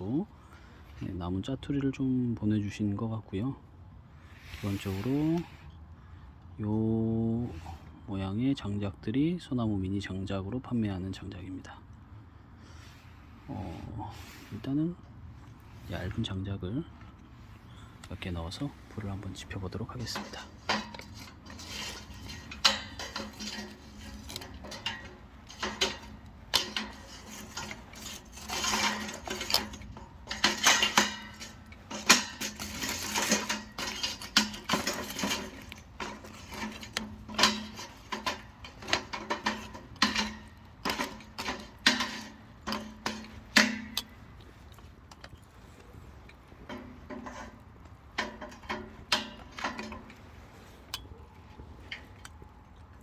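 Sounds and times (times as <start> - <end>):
rustling and clatter: 17.0 - 53.0
wood sticks knocking against steel: 19.7 - 44.2, 46.6 - 51.3.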